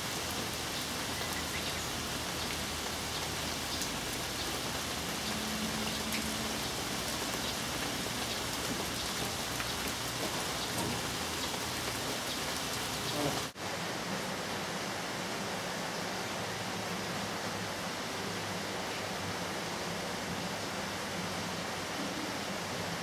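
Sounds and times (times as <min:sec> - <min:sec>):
steady rain falling: 0:00.0 - 0:23.0
raindrop ticks: 0:00.8 - 0:13.5.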